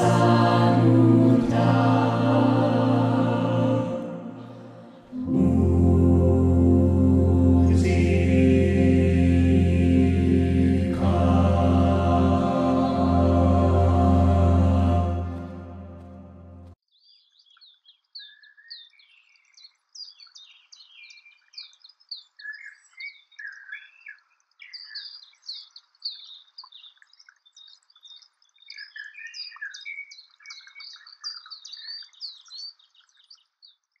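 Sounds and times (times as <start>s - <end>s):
songbirds chirping and singing: 0.0s - 16.0s, 17.0s - 34.0s.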